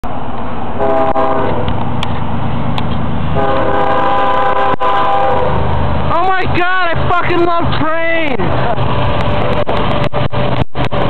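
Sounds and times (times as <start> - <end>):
train rumbling past: 0.0 - 11.0
train horn blasts: 0.8 - 1.7, 3.4 - 5.6.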